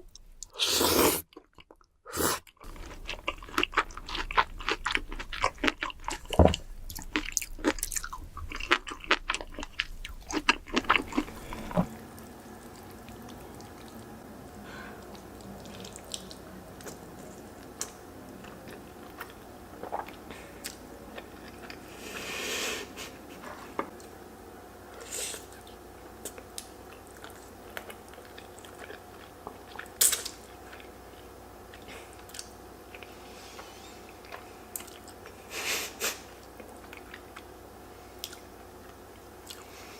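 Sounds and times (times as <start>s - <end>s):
crunchy bites and chewing: 2.5s - 11.9s.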